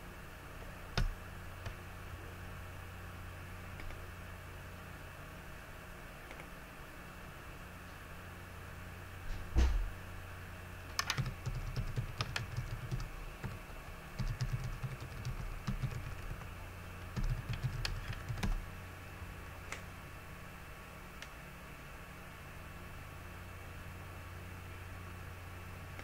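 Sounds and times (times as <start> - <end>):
low thump: 9.5 - 9.9
typing on computer keyboard: 10.9 - 13.6, 14.2 - 16.5, 17.1 - 18.6.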